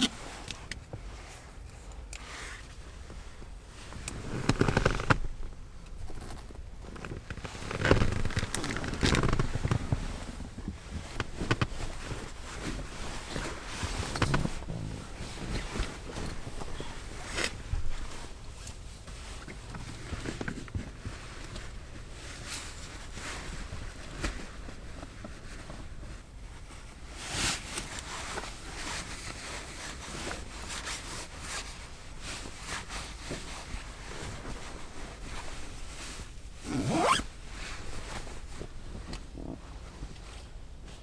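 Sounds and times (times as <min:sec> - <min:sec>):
gear clicking and rustling: 0:03.8 - 0:18.1, 0:36.7 - 0:37.2
zipper pulled quickly: 0:36.6 - 0:37.3.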